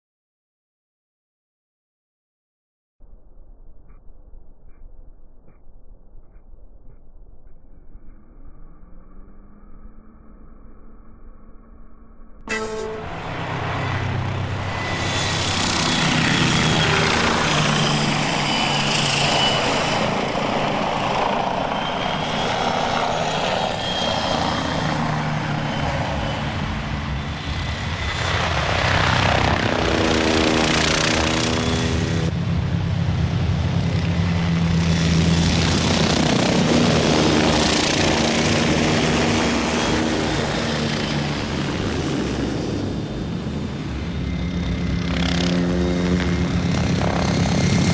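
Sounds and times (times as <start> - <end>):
model helicopter motor and rotor: 12.5 - 47.9.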